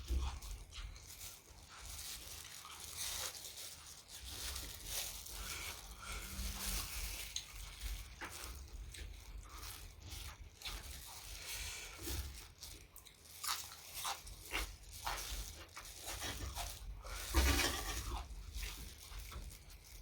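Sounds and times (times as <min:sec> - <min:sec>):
chewing food: 0:00.0 - 0:20.0.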